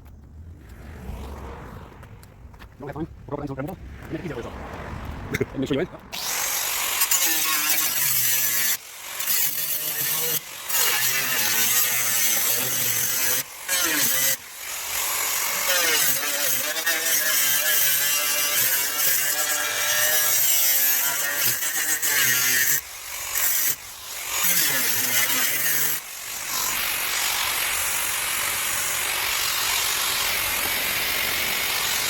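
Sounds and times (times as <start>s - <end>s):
angle grinder cutting sheet metal: 6.1s - 32.0s.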